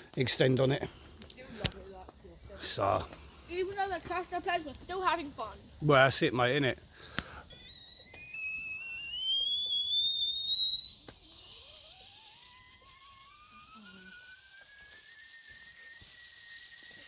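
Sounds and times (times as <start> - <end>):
whistling kettle: 7.5 - 17.0.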